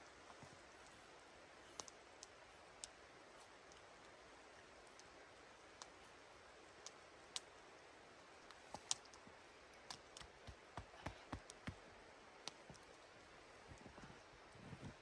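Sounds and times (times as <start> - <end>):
low steady hiss: 0.0 - 15.0
faint sharp clicks and snaps: 1.7 - 4.2, 5.8 - 6.0, 6.8 - 7.5, 8.4 - 11.8, 12.4 - 13.1.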